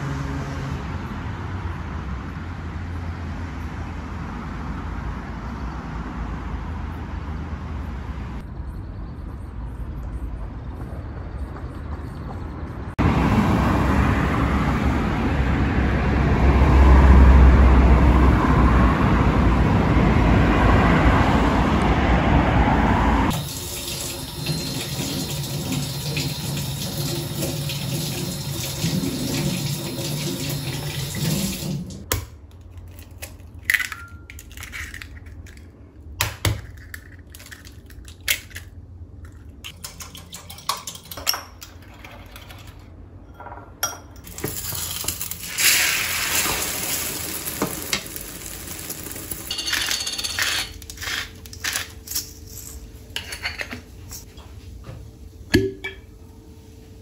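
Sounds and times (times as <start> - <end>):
kitchen tap running into sink: 23.4 - 32.0
dishes and utensils clinking: 49.5 - 54.3.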